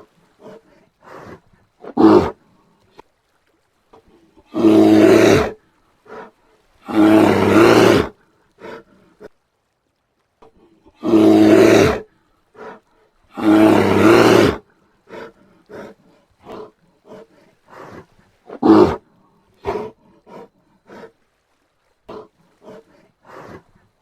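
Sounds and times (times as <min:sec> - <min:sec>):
bear grunting calls: 0:00.0 - 0:02.4, 0:04.4 - 0:08.8, 0:10.9 - 0:12.0, 0:12.6 - 0:19.0, 0:19.6 - 0:21.1, 0:22.1 - 0:23.7
bear roaring: 0:00.0 - 0:02.4, 0:04.5 - 0:08.8, 0:11.0 - 0:12.0, 0:12.6 - 0:19.0, 0:19.6 - 0:21.1, 0:22.1 - 0:23.7.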